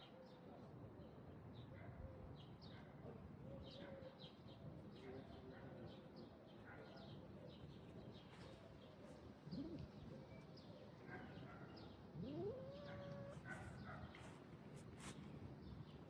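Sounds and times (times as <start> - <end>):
cat meowing: 12.2 - 13.4.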